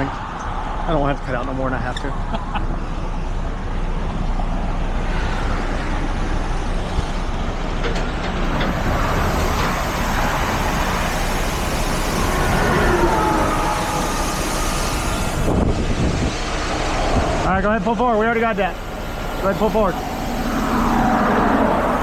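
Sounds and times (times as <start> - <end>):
diesel truck engine running: 0.0 - 22.0
faint whine: 8.4 - 22.0.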